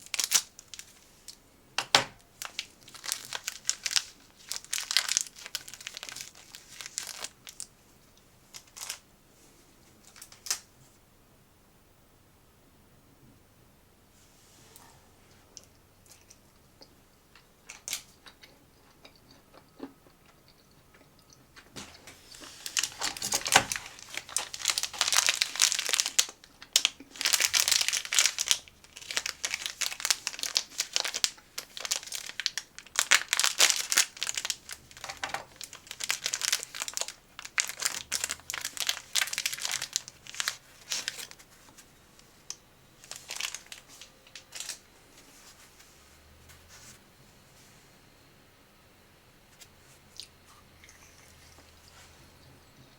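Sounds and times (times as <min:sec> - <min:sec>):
snack wrapper crinkling: 0:00.0 - 0:01.4, 0:02.4 - 0:07.7, 0:08.5 - 0:09.0, 0:15.6 - 0:41.8, 0:42.4 - 0:45.6.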